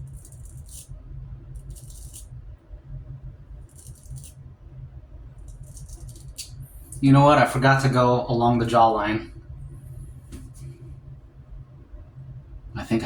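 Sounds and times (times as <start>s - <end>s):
razor scraping stubble: 3.6s - 4.4s, 5.5s - 7.0s.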